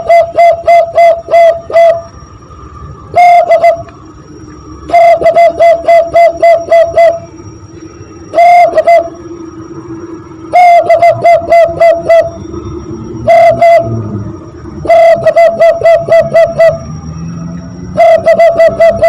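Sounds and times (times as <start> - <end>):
hand-blown dove call imitation: 0.0 - 2.1, 3.1 - 4.0, 4.9 - 7.4, 8.3 - 9.2, 10.5 - 12.4, 13.2 - 14.0, 14.8 - 16.8, 17.9 - 19.0.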